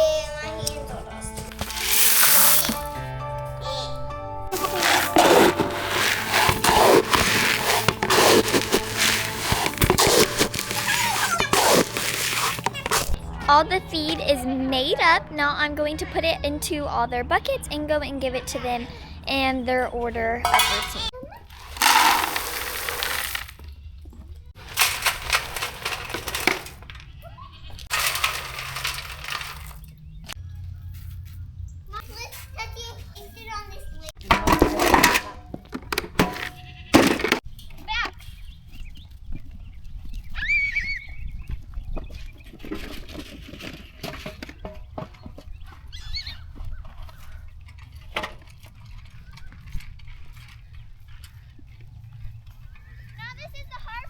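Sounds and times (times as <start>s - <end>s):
dry feed poured into buckets: 1.5s - 2.9s, 4.5s - 13.2s, 21.5s - 23.6s, 24.6s - 26.6s, 27.9s - 29.8s.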